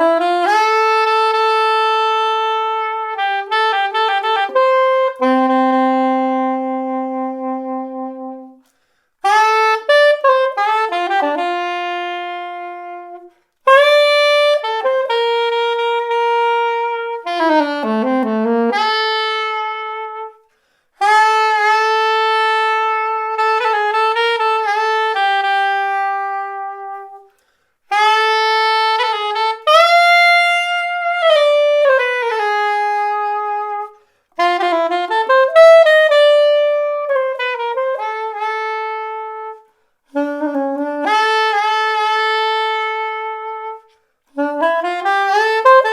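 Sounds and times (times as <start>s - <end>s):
soprano saxophone jazz melody: 0.0s - 45.9s.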